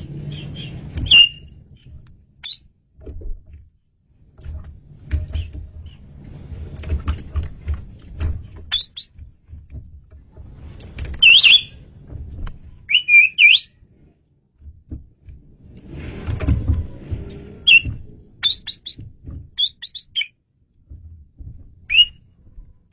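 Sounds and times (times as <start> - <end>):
low uneven rumble: 0.0 - 22.9
starling whistled calls: 1.1 - 1.4, 8.7 - 9.1, 11.2 - 11.7, 12.9 - 13.7, 17.7 - 19.0, 19.6 - 20.3, 21.9 - 22.2.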